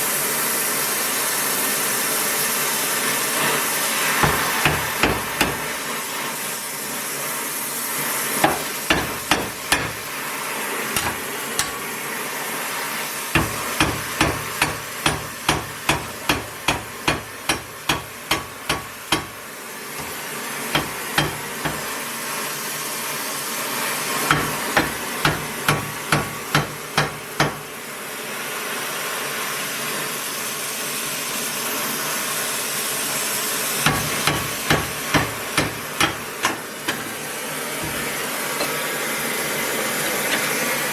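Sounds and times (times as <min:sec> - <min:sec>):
hammer blows: 0:04.2 - 0:05.8, 0:08.4 - 0:10.1, 0:11.0 - 0:11.9, 0:13.4 - 0:19.4, 0:20.0 - 0:22.0, 0:33.8 - 0:38.8.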